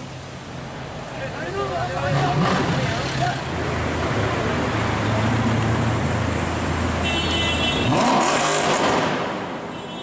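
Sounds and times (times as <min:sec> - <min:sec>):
car engine revving: 0:07.9 - 0:09.4.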